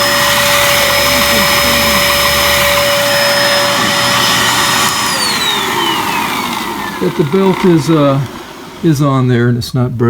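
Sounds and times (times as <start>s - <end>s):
vacuum cleaner whining: 0.0s - 9.8s.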